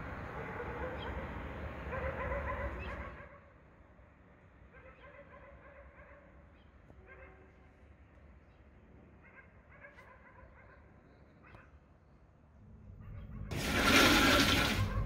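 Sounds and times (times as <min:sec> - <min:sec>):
dogs barking and howling: 0:01.9 - 0:03.3, 0:12.9 - 0:13.7
low night-time hum: 0:12.3 - 0:15.0.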